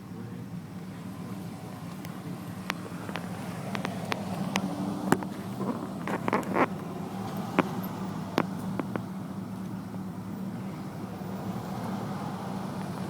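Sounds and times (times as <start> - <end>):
car interior hum: 0.0 - 13.0
sharp clicks and ticks: 1.8 - 9.1.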